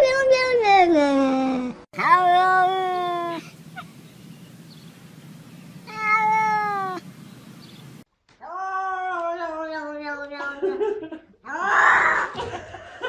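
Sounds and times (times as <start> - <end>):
cat meowing: 2.0 - 4.0, 5.8 - 7.1.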